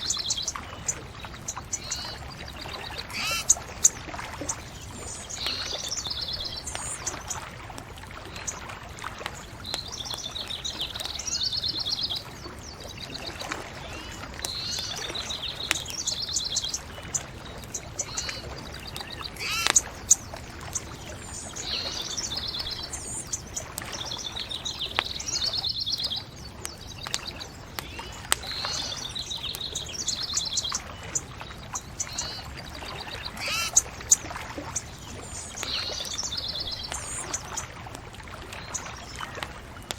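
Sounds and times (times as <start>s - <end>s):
songbird trilling: 0.0s - 7.4s, 9.6s - 37.7s
wood fire crackling: 14.2s - 30.2s, 34.2s - 39.9s.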